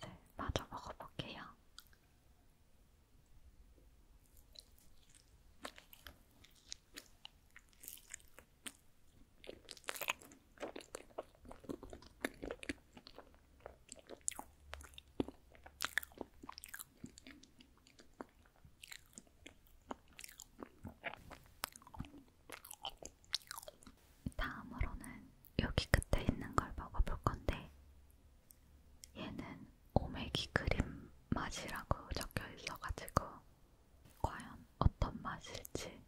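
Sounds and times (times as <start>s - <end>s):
close chewing: 4.3s - 24.0s.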